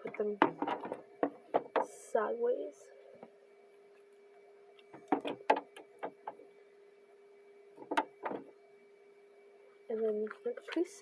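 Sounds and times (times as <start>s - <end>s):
plastic bottles knocking: 0.0s - 1.9s, 4.9s - 6.4s
faint steady hum: 0.0s - 11.0s.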